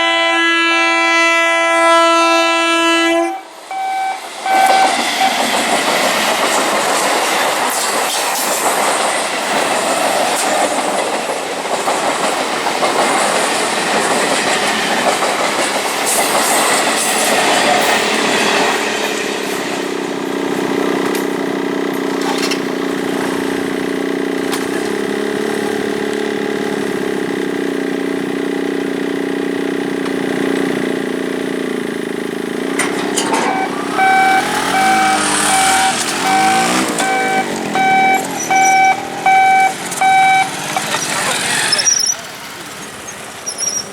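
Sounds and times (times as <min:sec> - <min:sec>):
train coaches rumbling: 0:00.0 - 0:43.9
train wheels clattering over rail joints: 0:04.2 - 0:43.9.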